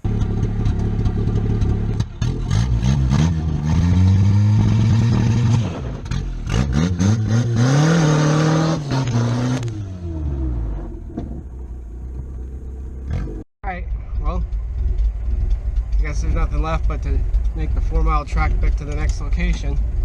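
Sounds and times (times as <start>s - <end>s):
car engine revving and idling: 0.0s - 20.0s.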